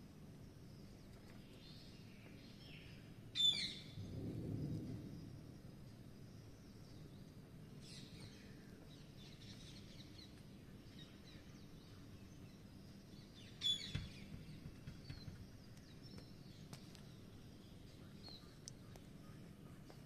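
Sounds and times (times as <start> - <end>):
low background hum: 0.0 - 20.0
high bird chirps: 13.5 - 14.4.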